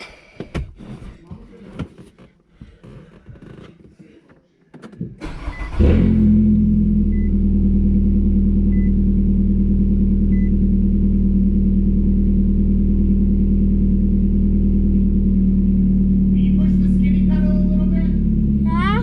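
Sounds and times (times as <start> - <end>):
car engine idling loudly: 6.3 - 19.0.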